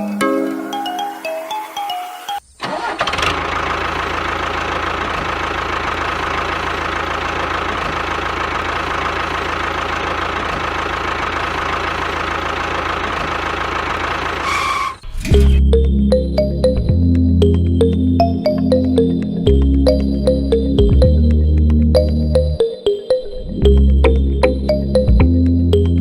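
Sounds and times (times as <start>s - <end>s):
small engine idling: 2.6s - 15.6s.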